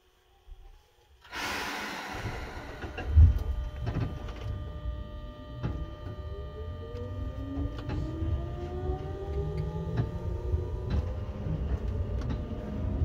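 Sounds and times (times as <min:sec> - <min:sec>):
air hiss: 0:01.2 - 0:03.4
traction motor whine: 0:01.3 - 0:13.0
train rolling rumble: 0:01.6 - 0:04.5.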